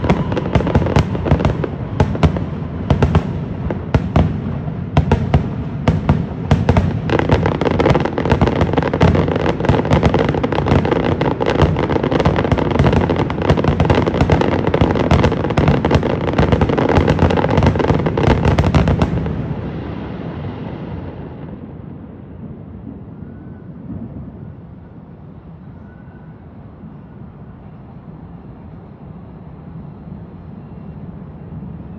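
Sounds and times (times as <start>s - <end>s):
fireworks bangs and crackling: 0.0s - 24.8s
fireworks rumble: 0.0s - 25.9s.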